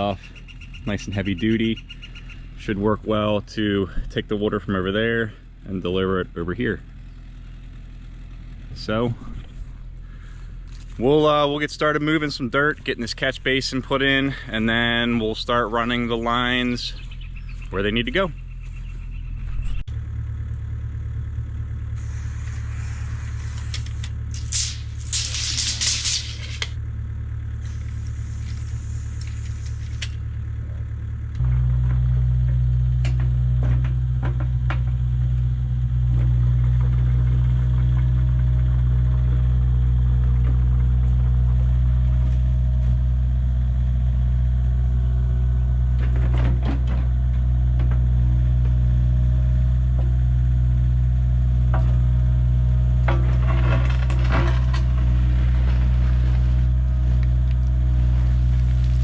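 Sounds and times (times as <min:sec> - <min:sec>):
excavator engine running: 0:00.0 - 0:59.0
bursts of hiss: 0:22.0 - 0:26.7, 0:27.6 - 0:30.1.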